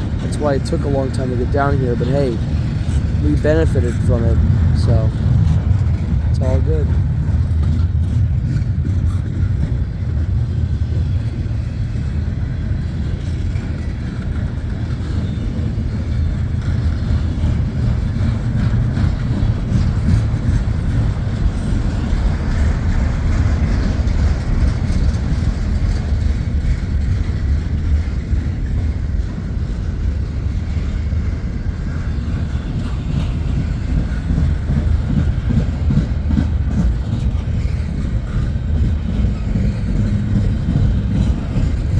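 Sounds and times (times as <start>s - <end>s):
train wheels rumbling on rail: 0.0s - 41.9s.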